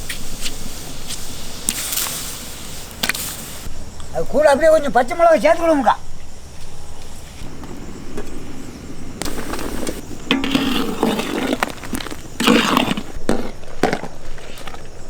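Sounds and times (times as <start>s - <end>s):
scraping and rustling ingredients: 6.4s - 15.0s.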